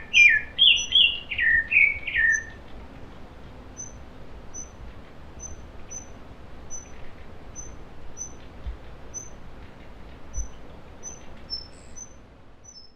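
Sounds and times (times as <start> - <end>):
bird chirping: 0.0 - 2.8, 3.7 - 12.9
soft low thumps: 8.4 - 10.6.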